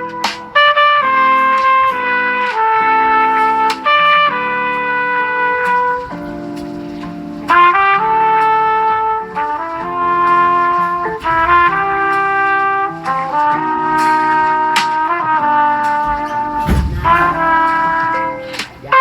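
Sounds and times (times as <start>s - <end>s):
brass-like ringtone melody: 0.0s - 19.0s.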